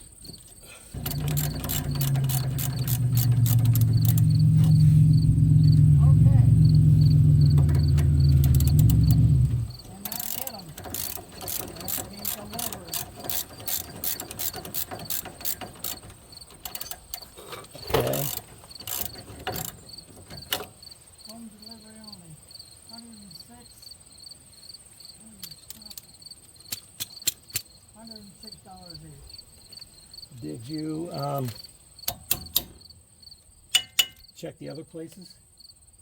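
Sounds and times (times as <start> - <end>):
insects chirring: 0.0 - 36.0
ratchet wrench clicking: 1.0 - 5.9, 6.5 - 20.7
metallic knock: 33.8 - 34.3.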